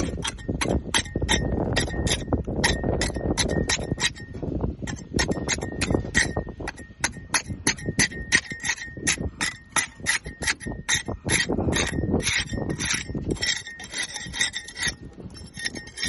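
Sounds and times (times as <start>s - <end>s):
scraper scraping boat hull: 8.4s - 16.0s.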